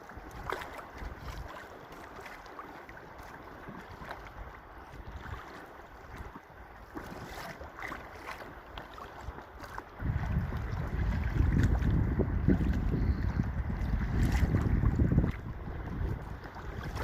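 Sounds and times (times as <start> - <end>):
wind buffeting microphone: 0.0 - 1.6, 9.2 - 17.0
water splashing around a kayak: 0.0 - 17.0.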